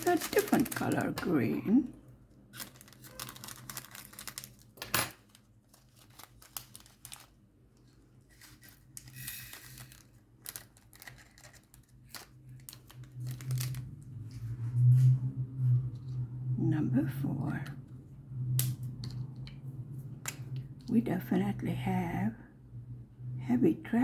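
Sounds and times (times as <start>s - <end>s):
rustling: 0.0s - 1.4s, 2.4s - 16.3s
plastic bags crinkling: 0.0s - 14.0s.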